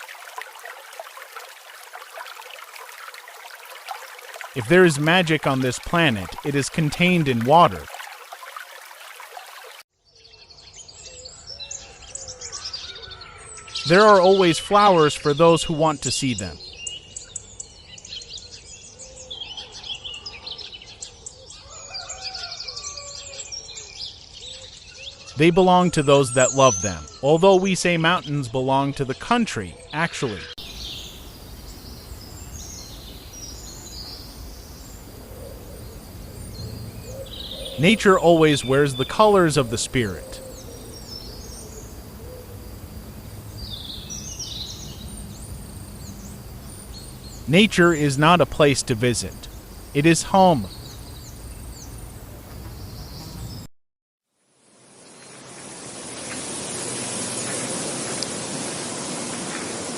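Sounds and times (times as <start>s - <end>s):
birds chirping and singing: 10.1s - 53.6s
low outdoor hum: 30.6s - 53.6s.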